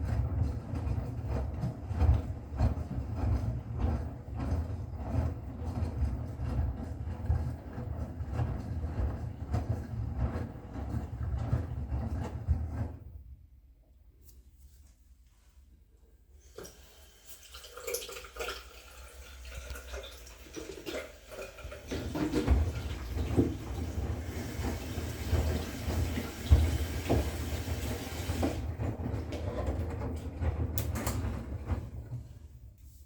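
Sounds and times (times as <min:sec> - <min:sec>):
washing machine water sloshing: 0:00.0 - 0:13.2, 0:16.4 - 0:33.0
low rumble with knocks: 0:22.0 - 0:32.3.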